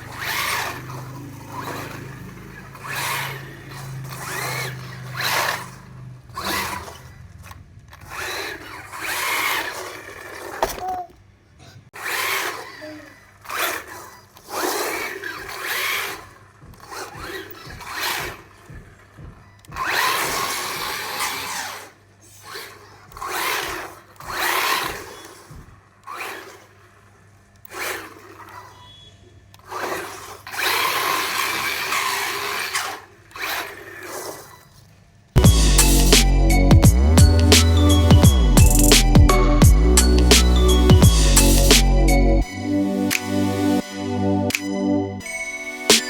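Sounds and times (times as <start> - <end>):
small electric motor whirring: 0.0 - 10.9.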